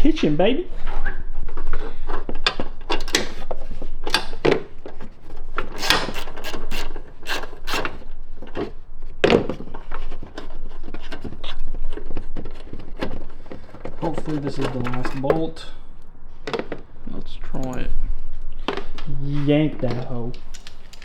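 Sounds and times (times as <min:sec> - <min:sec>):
hand tools scraping and clicking: 0:01.7 - 0:16.9, 0:19.7 - 0:21.0.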